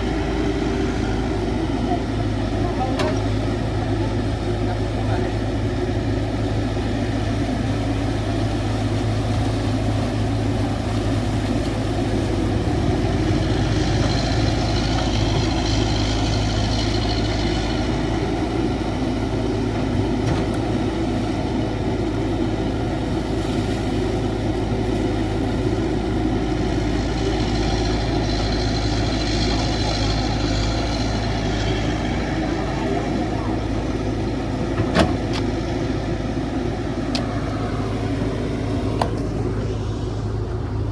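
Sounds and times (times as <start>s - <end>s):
hydraulic excavator running: 0.0s - 40.9s.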